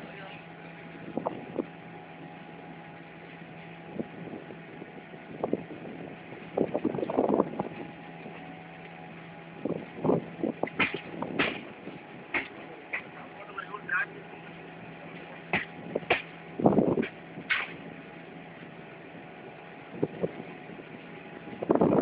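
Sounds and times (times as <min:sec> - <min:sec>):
train rumble and hum: 0:00.0 - 0:22.0
train knocks and clatter: 0:10.6 - 0:11.7, 0:12.3 - 0:13.2.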